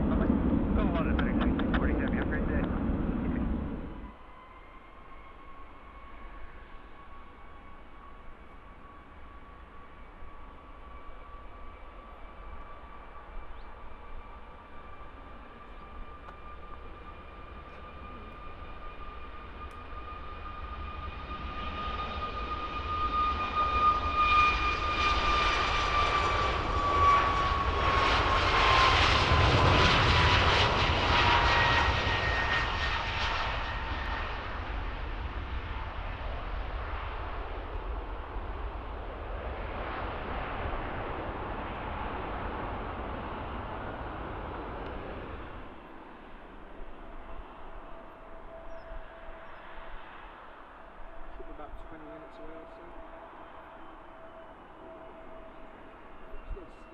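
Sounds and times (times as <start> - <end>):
jet airliner passing: 0.0 - 56.9.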